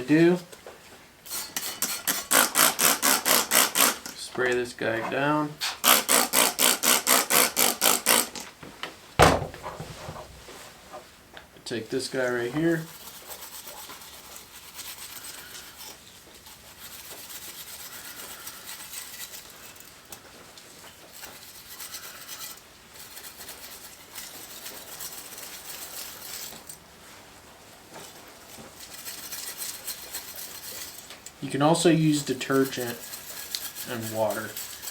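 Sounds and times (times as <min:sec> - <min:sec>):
steel pad scrubbing saw blade: 0:01.3 - 0:04.2, 0:05.6 - 0:08.4, 0:12.8 - 0:19.9, 0:32.2 - 0:34.9.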